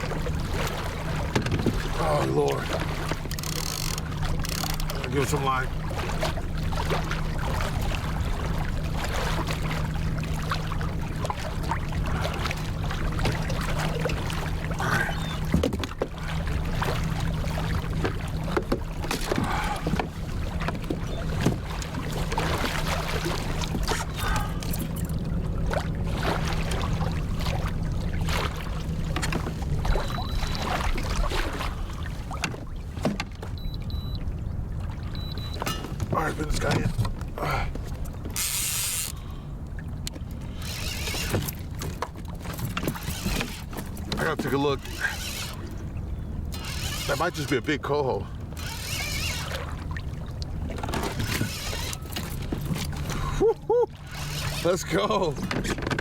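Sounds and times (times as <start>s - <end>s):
water splashing around kayak: 0.0s - 56.0s
knocks and clicks of gear: 1.2s - 1.9s, 3.0s - 5.3s, 15.3s - 16.6s, 17.8s - 25.8s, 29.0s - 31.1s, 32.3s - 34.2s, 35.2s - 39.3s, 40.0s - 45.9s, 50.4s - 53.3s, 55.4s - 56.0s.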